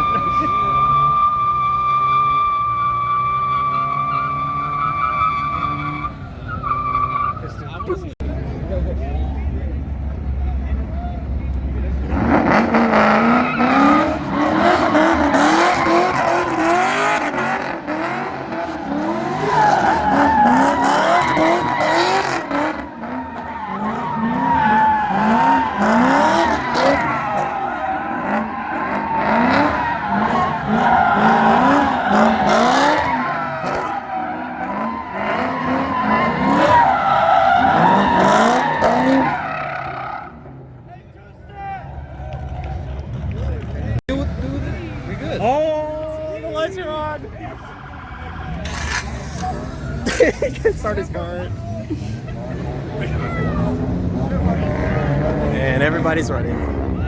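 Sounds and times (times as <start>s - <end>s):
tyres squealing: 0.0s - 8.1s, 12.0s - 40.6s, 46.1s - 51.0s
car engine revving: 0.0s - 41.0s, 41.8s - 57.0s.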